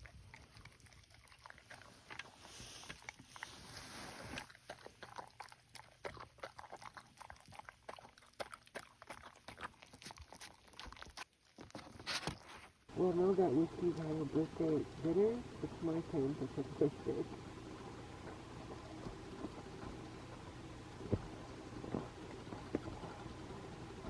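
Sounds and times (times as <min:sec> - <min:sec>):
dog chewing and smacking: 0:00.0 - 0:12.6.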